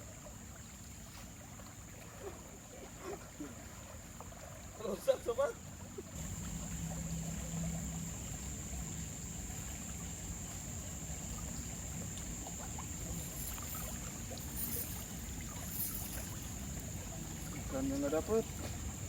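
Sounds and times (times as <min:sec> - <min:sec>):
river water running: 0:00.0 - 0:19.0.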